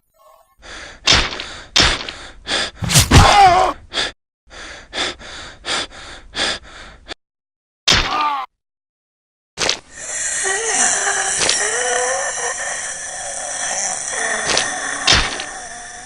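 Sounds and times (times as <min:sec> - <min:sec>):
person gasping and panting: 0:00.6 - 0:07.2, 0:09.9 - 0:16.0
person crying out: 0:03.1 - 0:03.8.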